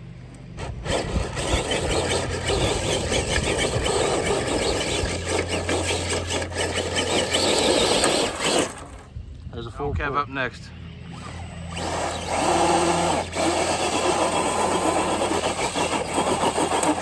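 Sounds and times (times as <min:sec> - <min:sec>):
electric motor running: 0:00.5 - 0:09.2, 0:11.0 - 0:17.0
tyres crunching over ground: 0:00.5 - 0:09.5.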